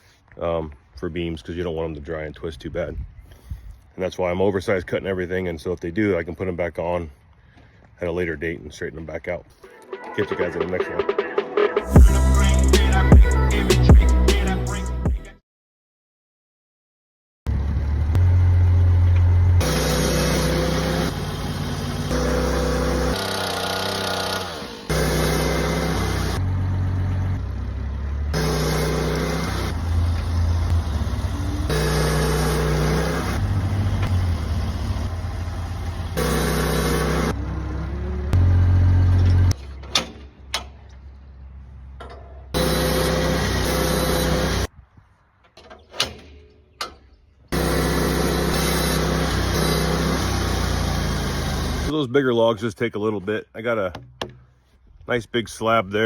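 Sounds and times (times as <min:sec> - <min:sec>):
sawmill engine cutting logs: 0:17.5 - 0:40.7, 0:42.6 - 0:44.7, 0:45.9 - 0:51.9.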